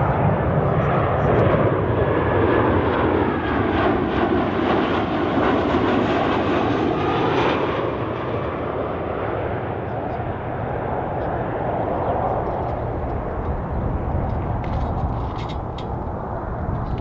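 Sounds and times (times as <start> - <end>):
jet airliner engines roaring: 0.0 - 17.0
faint gliding whine: 10.0 - 17.0.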